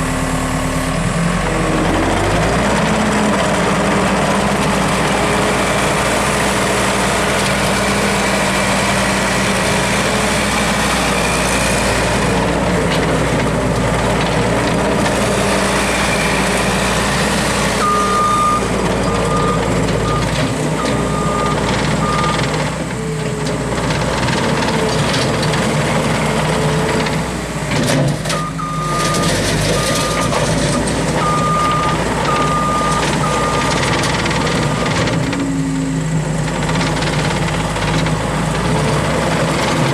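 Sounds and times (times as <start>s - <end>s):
skid steer engine running: 0.0s - 39.9s
backup alarm beeping: 17.8s - 22.6s, 28.4s - 30.4s, 31.2s - 33.9s.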